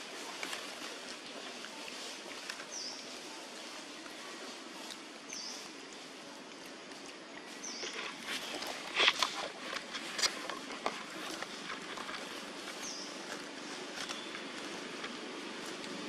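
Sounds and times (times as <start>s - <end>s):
outdoor background hiss: 0.0s - 16.0s
bird chirping: 5.3s - 5.7s, 7.5s - 8.2s, 12.8s - 13.3s.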